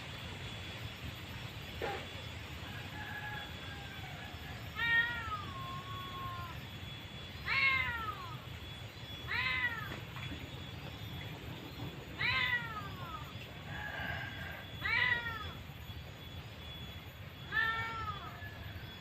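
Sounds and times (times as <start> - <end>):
cat meowing: 4.8 - 6.6, 7.4 - 8.4, 9.3 - 9.9, 12.2 - 13.3, 14.8 - 15.6, 17.5 - 18.4.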